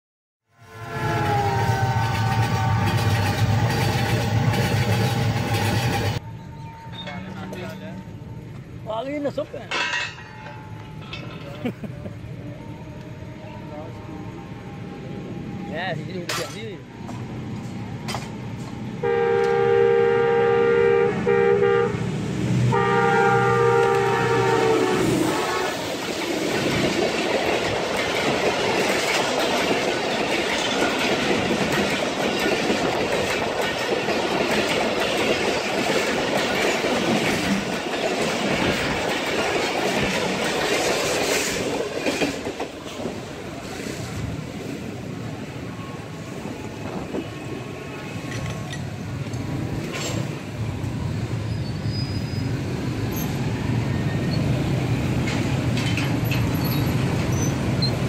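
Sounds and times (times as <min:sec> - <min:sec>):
locomotive horn blasts: 0:00.6 - 0:03.1, 0:19.0 - 0:22.1, 0:22.7 - 0:25.9
train wheels on rails: 0:01.0 - 0:13.2, 0:15.4 - 0:19.8, 0:22.1 - 0:58.0.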